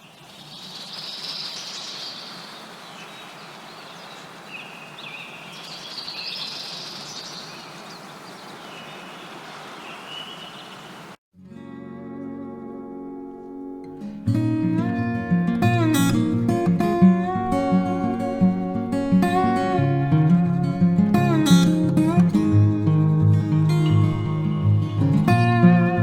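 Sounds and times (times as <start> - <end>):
small birds singing: 0.0 - 11.2
steady background hiss: 0.0 - 11.2
plucked acoustic guitar music: 11.4 - 26.0.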